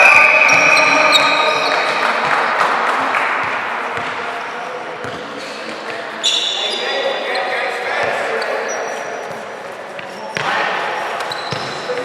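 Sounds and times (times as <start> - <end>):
sneaker squeaks on court: 0.0 - 2.3, 5.0 - 9.4, 10.0 - 12.0
noise of gym hall: 0.0 - 12.0
basketball bouncing: 0.5 - 4.3, 11.3 - 12.0.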